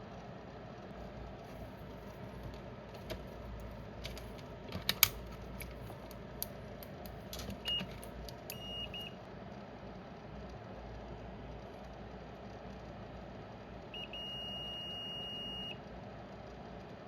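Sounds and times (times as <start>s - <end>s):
tools clicking and tapping: 2.4s - 8.6s.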